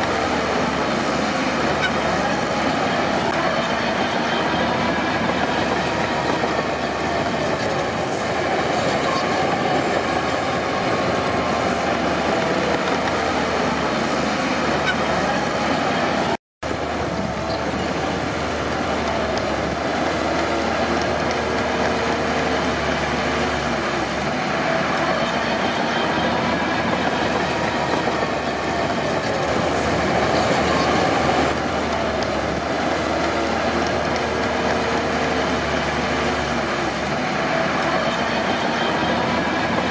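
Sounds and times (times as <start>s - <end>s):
bulldozer engine running: 0.0s - 39.9s
steel tracks clattering and squealing: 1.1s - 13.3s, 24.6s - 31.6s, 37.3s - 39.9s.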